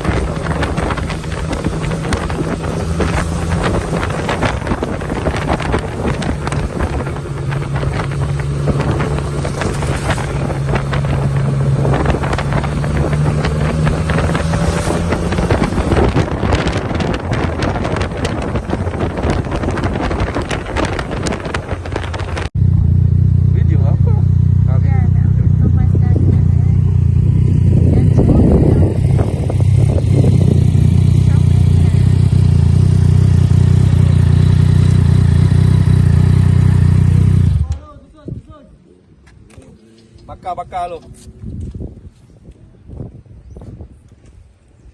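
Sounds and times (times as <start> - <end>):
wind on the microphone: 0.0 - 22.6, 25.3 - 38.8, 40.1 - 44.9
low engine hum: 0.0 - 37.8.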